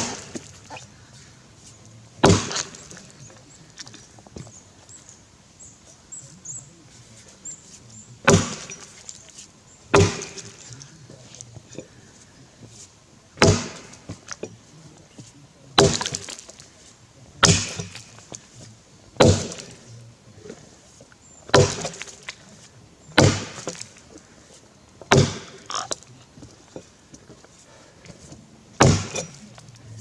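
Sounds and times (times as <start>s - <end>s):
axe chopping into log: 0.0s - 0.9s, 2.2s - 4.5s, 8.2s - 9.1s, 9.9s - 10.9s, 13.4s - 14.5s, 15.8s - 16.6s, 17.4s - 18.5s, 19.2s - 19.8s, 21.5s - 22.4s, 23.2s - 24.0s, 25.1s - 26.1s, 28.8s - 30.0s
wood crackling: 0.0s - 30.0s.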